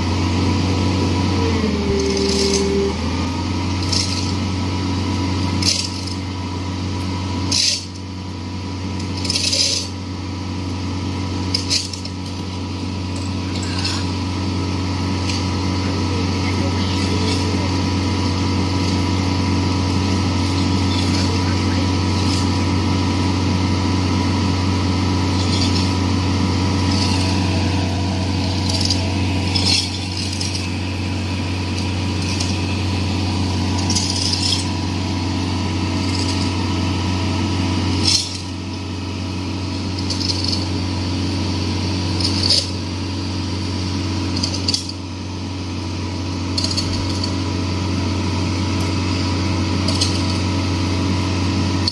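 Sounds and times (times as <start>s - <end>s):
excavator engine running: 0.0s - 51.9s.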